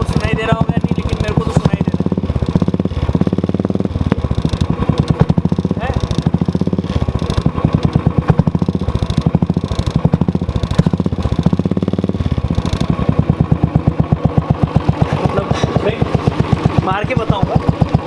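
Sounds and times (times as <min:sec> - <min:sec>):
drive chain clatter: 0:00.0 - 0:13.7
motorcycle engine running: 0:00.0 - 0:18.0.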